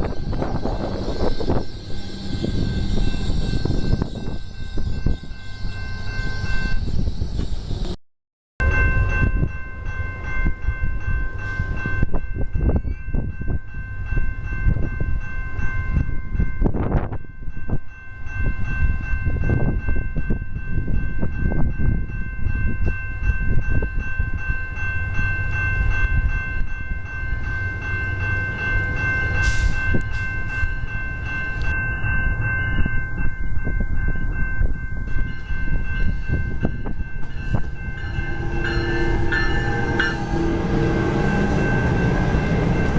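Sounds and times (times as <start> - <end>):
high-pitched whine: 0.0 - 8.0, 37.3 - 42.9
train rumbling past: 0.0 - 8.0, 8.6 - 42.9.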